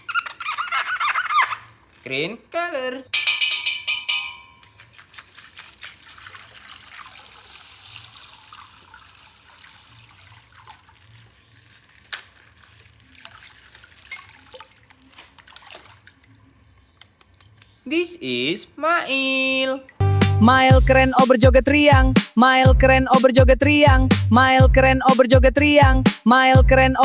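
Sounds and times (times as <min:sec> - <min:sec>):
plastic packaging rustling: 0:10.9 - 0:15.5.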